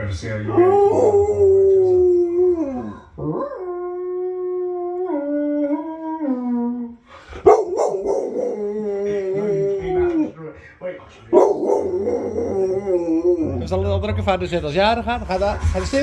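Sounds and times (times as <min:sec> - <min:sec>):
dog howling: 0:00.2 - 0:10.4, 0:11.3 - 0:13.8
dog yelp: 0:07.4 - 0:09.0, 0:11.3 - 0:13.5.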